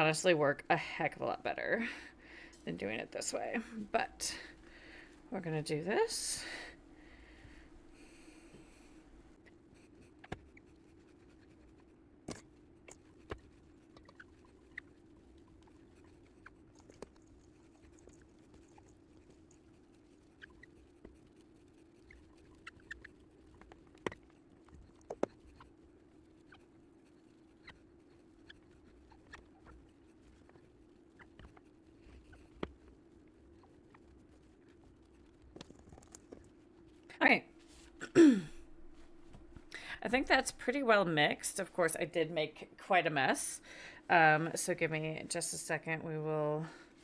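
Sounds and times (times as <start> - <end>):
low steady hum: 0.0 - 10.2, 23.2 - 47.0.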